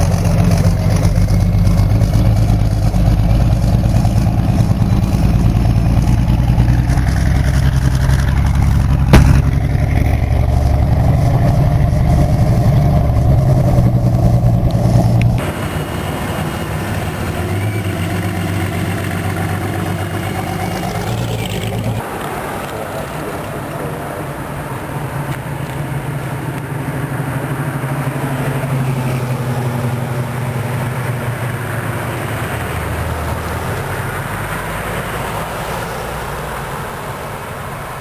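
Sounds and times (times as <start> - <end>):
sharp crack: 0.0 - 24.1
loud engine running: 0.0 - 35.6.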